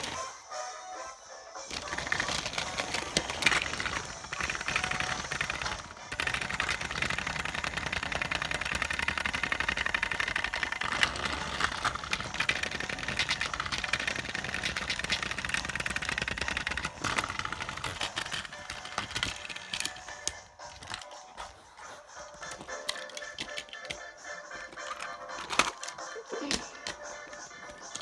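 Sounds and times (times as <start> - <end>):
small engine rattling: 1.7 - 21.6.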